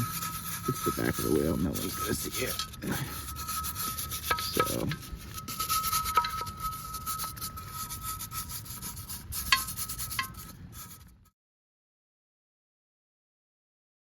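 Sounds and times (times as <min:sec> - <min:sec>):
hand scrubbing wheel: 0:00.0 - 0:11.2.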